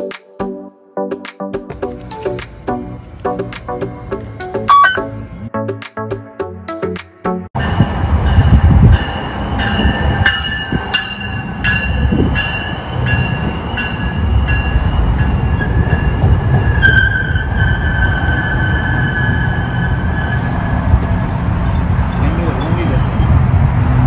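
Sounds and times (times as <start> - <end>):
metallic wheel squeal: 4.6 - 5.2, 9.2 - 23.3
train rumbling past: 7.6 - 24.0.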